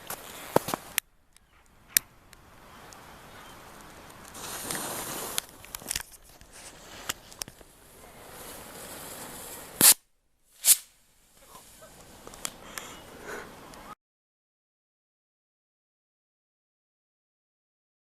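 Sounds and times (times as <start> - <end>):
crackles and clicks: 0.0 - 14.0
bottle rocket hissing rush: 4.3 - 5.6, 7.8 - 13.6
sharp firework bangs: 8.6 - 10.0, 10.6 - 11.0.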